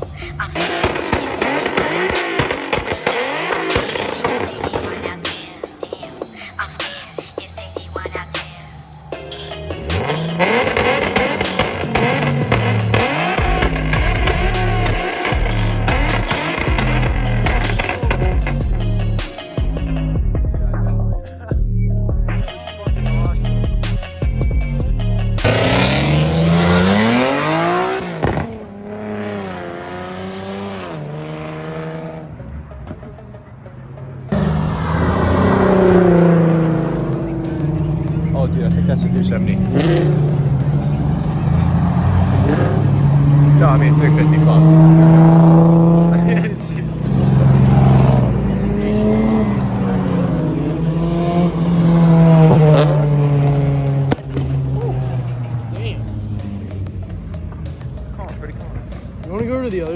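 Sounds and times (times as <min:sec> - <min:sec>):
car engine accelerating hard: 0:00.0 - 0:05.2, 0:09.5 - 0:20.0, 0:25.3 - 0:59.9.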